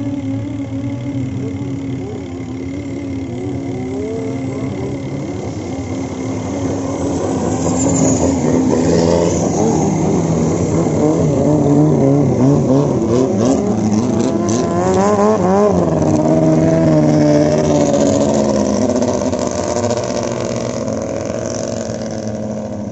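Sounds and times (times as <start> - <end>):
boat diesel engine running hard: 0.0 - 22.9.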